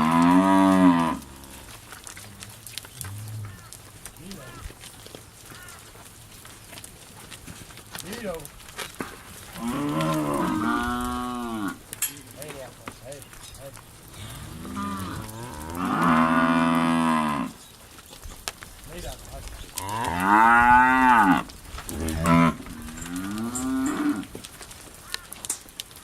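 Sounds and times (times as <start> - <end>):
cattle mooing: 0.0 - 1.8, 9.5 - 11.8, 14.1 - 17.6, 19.8 - 24.4.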